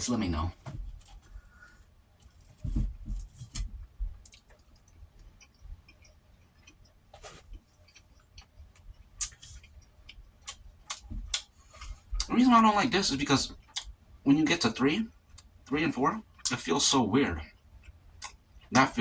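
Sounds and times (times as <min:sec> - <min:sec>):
chewing mouth clicks: 0:04.2 - 0:07.0, 0:07.6 - 0:12.3.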